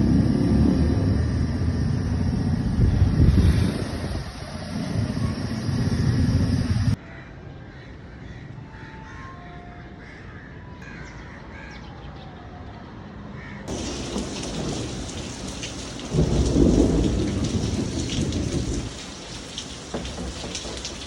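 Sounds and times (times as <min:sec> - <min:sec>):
loud low rumble: 0:00.0 - 0:07.0
crows cawing: 0:07.0 - 0:11.8.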